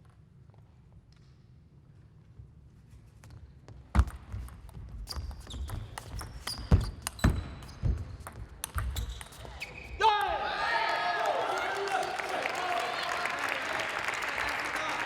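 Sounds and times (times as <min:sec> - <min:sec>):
shoe squeaks on floor: 0:04.9 - 0:10.0.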